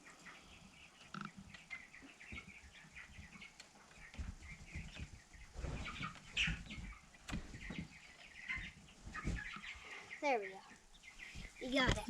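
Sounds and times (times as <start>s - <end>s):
chicks peeping: 0.0s - 12.0s
low knocks and rustling: 3.2s - 9.7s.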